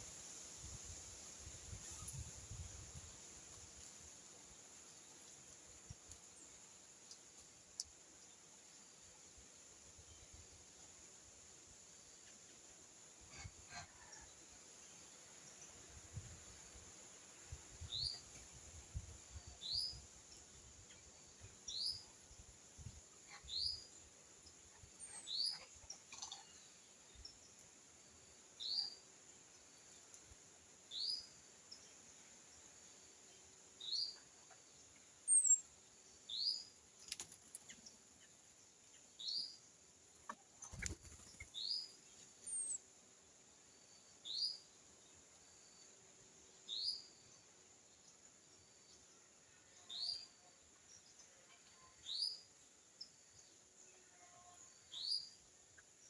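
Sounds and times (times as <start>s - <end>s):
steady high hiss: 0.0s - 51.4s.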